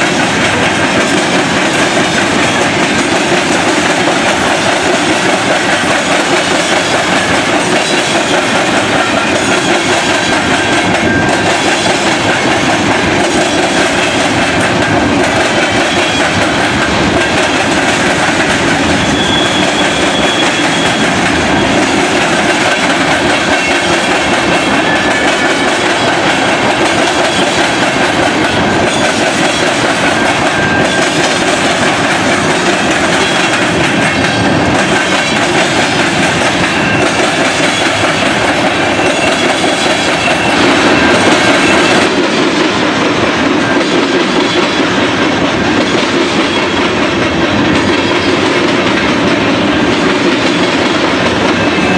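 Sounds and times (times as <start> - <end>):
train wheels clicking over rail joints: 0.0 - 51.9
high wheel squeal: 18.9 - 21.8, 38.8 - 42.1.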